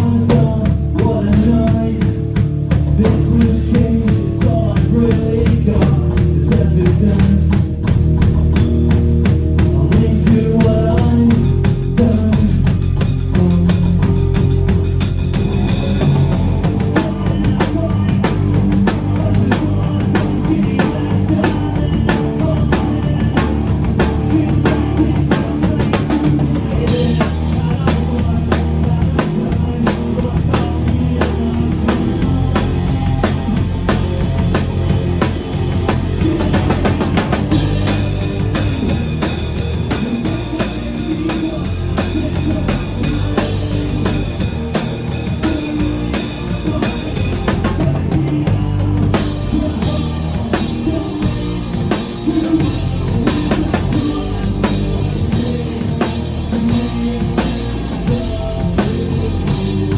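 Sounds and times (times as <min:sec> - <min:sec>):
drum kit beat: 0:00.0 - 0:59.9
live rock band playing: 0:00.0 - 0:59.9.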